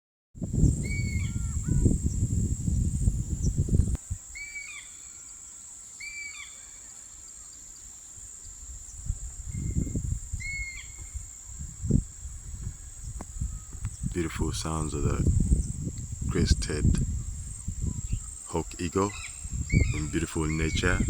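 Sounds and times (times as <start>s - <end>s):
high-pitched insect drone: 0.5s - 21.0s
bird calling: 0.8s - 2.0s, 4.3s - 7.7s, 10.4s - 11.6s, 16.4s - 21.0s.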